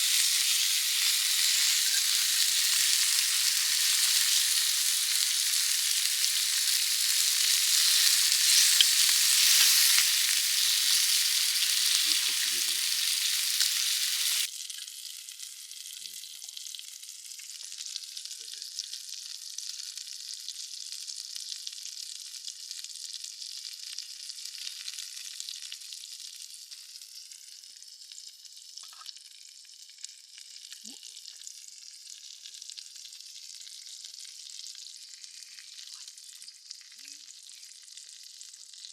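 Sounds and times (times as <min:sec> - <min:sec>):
beef sizzling on a hot pan: 0:00.0 - 0:38.9.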